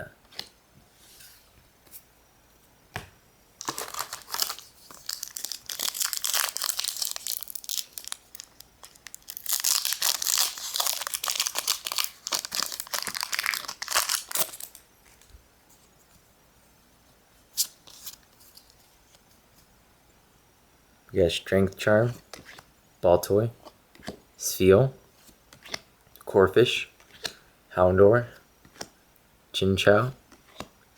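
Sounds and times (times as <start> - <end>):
foil wrapper crinkling and tearing: 3.6 - 15.2.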